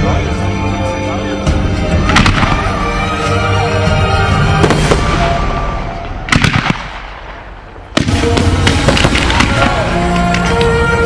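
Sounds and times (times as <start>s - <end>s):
music: 0.0s - 11.0s
fireworks bursting with bangs: 1.9s - 3.2s, 4.2s - 11.0s.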